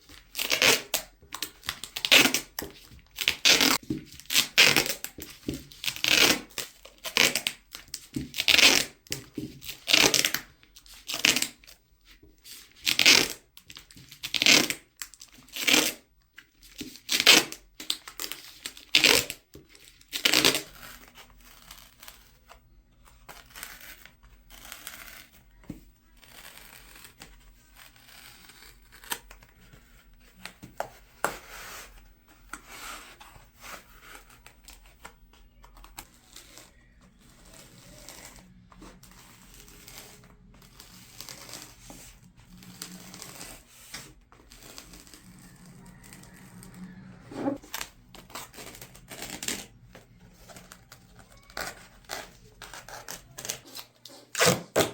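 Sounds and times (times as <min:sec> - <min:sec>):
tape crinkling and rubbing: 0:00.0 - 0:54.9
duct tape ripping off roll: 0:00.3 - 0:02.6, 0:03.2 - 0:05.1, 0:11.1 - 0:11.6, 0:12.8 - 0:13.4, 0:14.2 - 0:14.8, 0:15.5 - 0:16.0, 0:16.8 - 0:19.4, 0:20.1 - 0:22.2, 0:51.6 - 0:54.9.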